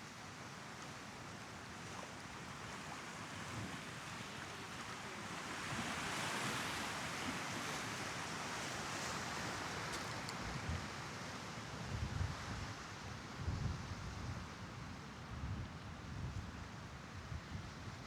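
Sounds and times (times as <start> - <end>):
waves washing up a sandy beach: 0.2 - 11.9.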